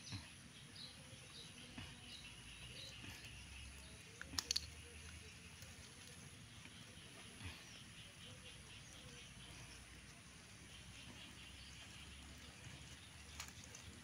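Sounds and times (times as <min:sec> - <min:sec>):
small bird chirping: 0:00.0 - 0:14.0
sharp clicks: 0:04.1 - 0:05.7.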